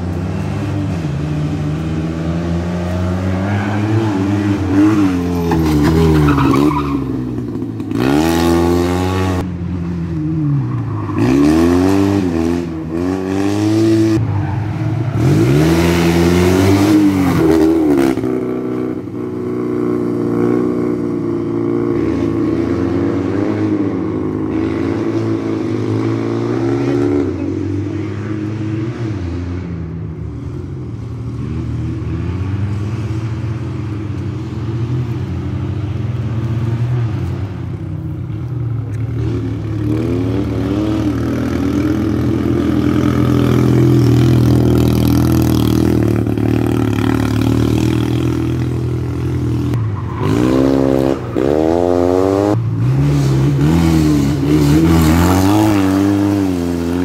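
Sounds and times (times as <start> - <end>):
rally car engine revving: 10.7 - 19.2, 39.2 - 57.0.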